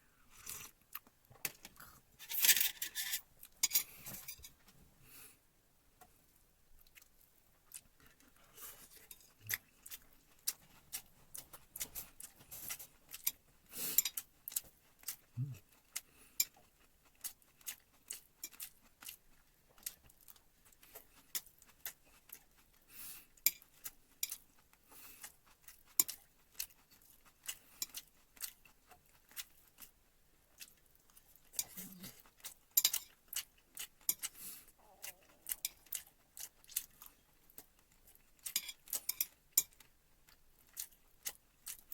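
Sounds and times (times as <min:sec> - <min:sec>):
metal utensils clinking on dishes: 0:02.2 - 0:04.5.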